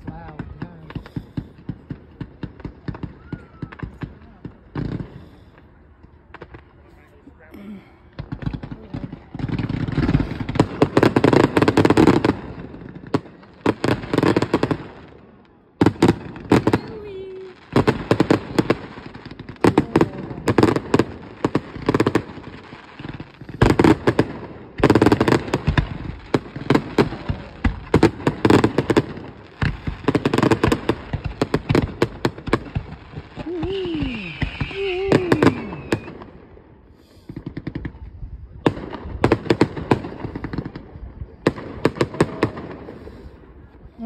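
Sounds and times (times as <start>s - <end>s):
fireworks cracking and booming: 0.0s - 44.0s
high wavering firework whistle: 3.1s - 4.0s, 33.4s - 36.3s.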